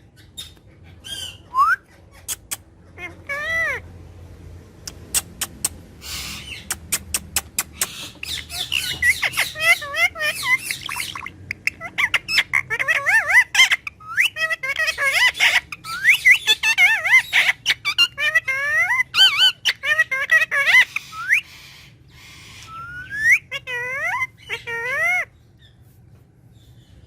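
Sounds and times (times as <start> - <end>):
parrot squawking: 0.1 - 4.0, 4.9 - 25.9
parrot clicking: 4.9 - 5.8, 6.7 - 8.3
parrot warbling chirps and whistles: 4.9 - 25.4.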